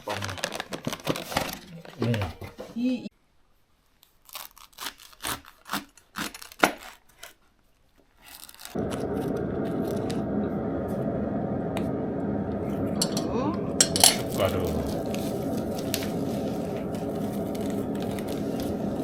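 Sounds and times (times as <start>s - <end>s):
plastic food packets tearing: 0.0s - 2.3s, 4.0s - 8.8s
steady low rushing noise: 8.8s - 19.0s.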